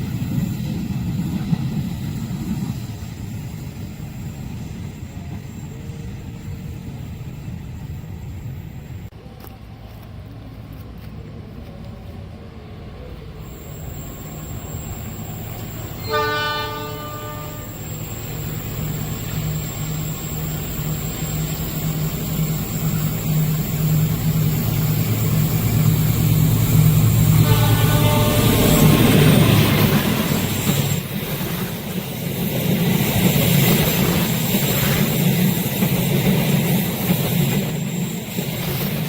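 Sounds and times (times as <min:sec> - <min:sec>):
train horn: 0:16.0 - 0:18.0, 0:27.2 - 0:29.4.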